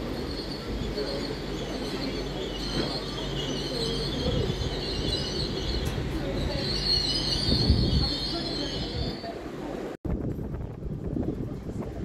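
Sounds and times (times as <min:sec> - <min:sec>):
high wheel squeal: 0:00.0 - 0:09.4
train wheels rumbling on rails: 0:00.0 - 0:12.0.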